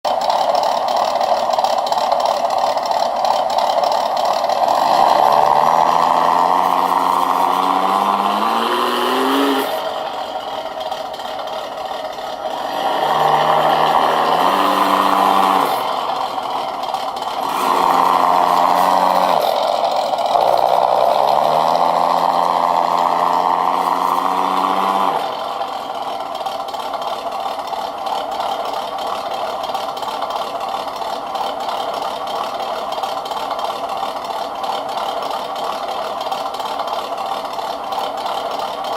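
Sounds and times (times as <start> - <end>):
engine sound module revving: 0.1 - 26.9.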